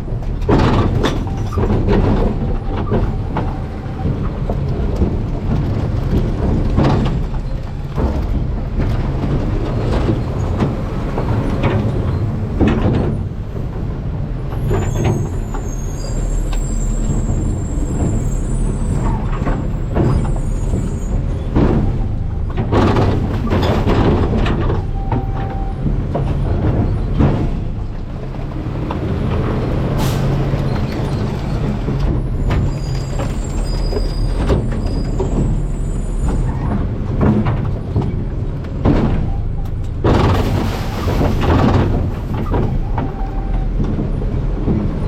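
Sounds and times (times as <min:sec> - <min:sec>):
garbage truck engine rumble: 0:00.0 - 0:45.0
trash clanking and crunching: 0:00.0 - 0:45.0
high squeal: 0:14.8 - 0:21.2, 0:32.4 - 0:36.6.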